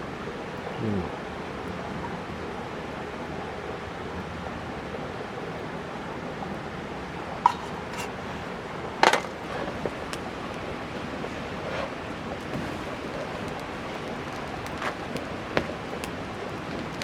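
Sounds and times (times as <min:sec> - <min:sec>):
wood fire hissing: 0:07.2 - 0:17.0.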